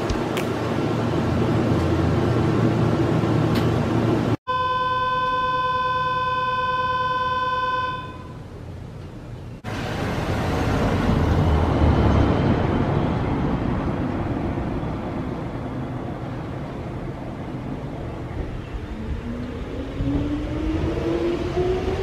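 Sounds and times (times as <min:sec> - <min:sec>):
electric train rumbling past: 0:08.5 - 0:22.0.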